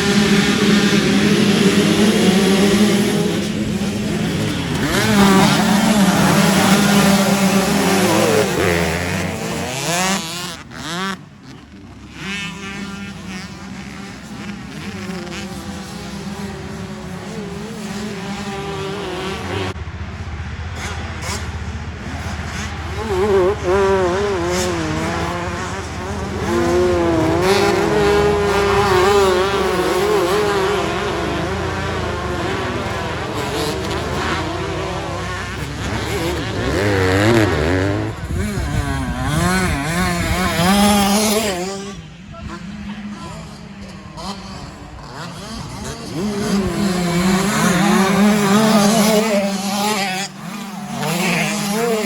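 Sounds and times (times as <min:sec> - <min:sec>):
motocross bikes revving: 0:00.0 - 0:52.0.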